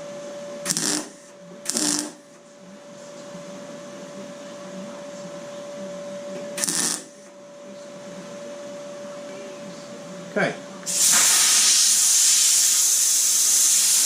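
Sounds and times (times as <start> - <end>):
faint hum: 0.0 - 10.9
tool hissing bursts: 0.7 - 2.2, 6.6 - 7.1, 10.9 - 14.0.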